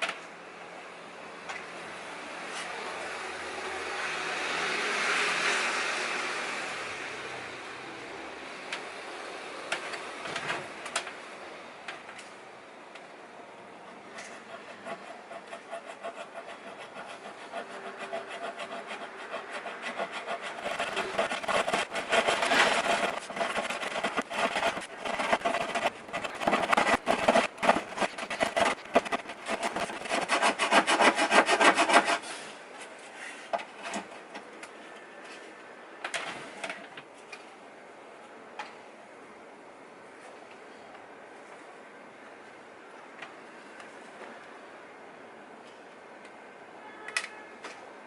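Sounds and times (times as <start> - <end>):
rubbing strokes on wood: 14.2 - 32.1
scrapes on wood: 14.2 - 32.4.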